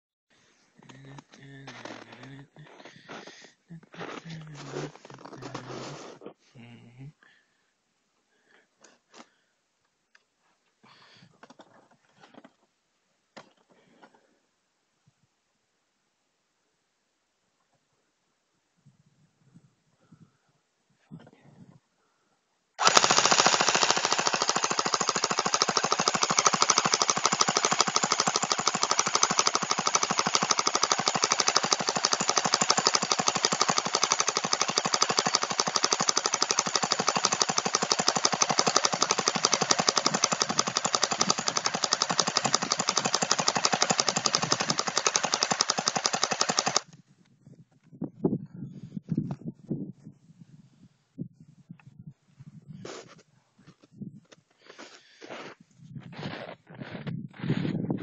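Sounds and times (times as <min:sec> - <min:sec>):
airsoft gun full-auto burst: 0:22.8 - 0:46.9.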